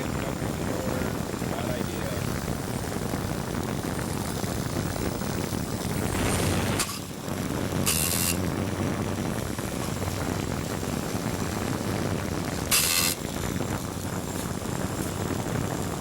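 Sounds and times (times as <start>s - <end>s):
short bursts of hiss: 7.8s - 8.4s, 12.7s - 13.2s
small drone motors running: 7.8s - 8.4s, 12.7s - 13.3s.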